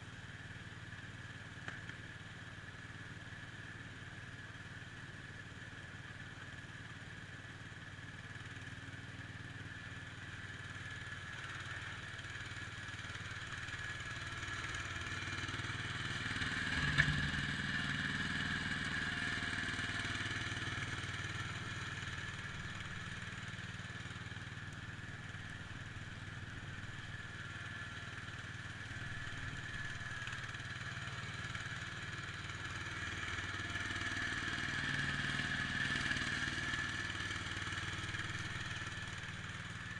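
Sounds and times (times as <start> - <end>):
garden tractor engine running: 10.5 - 39.9.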